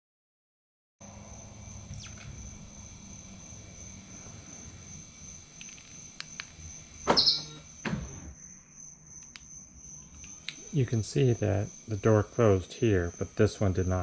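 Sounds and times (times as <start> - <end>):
crickets trilling: 1.0 - 14.0
car door closing clunk: 7.0 - 8.3
faint clicks: 9.2 - 9.5.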